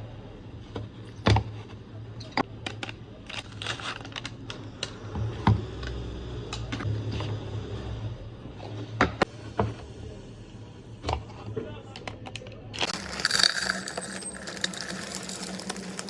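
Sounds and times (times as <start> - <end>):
packaging rustling: 12.8 - 16.0.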